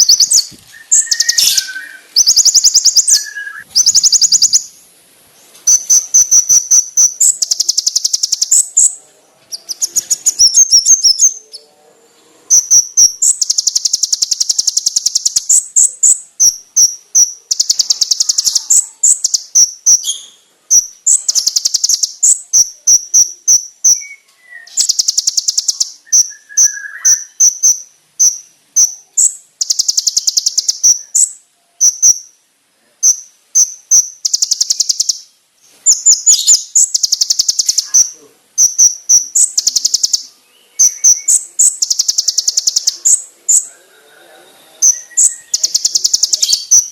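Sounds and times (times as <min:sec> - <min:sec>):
bird buzzy trills: 0:00.0 - 0:04.8, 0:05.6 - 0:11.6, 0:12.5 - 0:32.4, 0:33.0 - 0:35.3
bird sharp piercing notes: 0:00.0 - 0:04.8, 0:05.7 - 0:11.6, 0:12.5 - 0:32.4, 0:33.0 - 0:35.3, 0:35.9 - 0:46.9.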